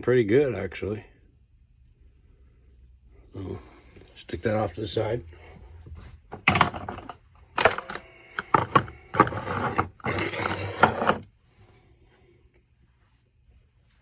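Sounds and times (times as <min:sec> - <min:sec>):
scraping and rummaging through tools: 0:06.5 - 0:11.3.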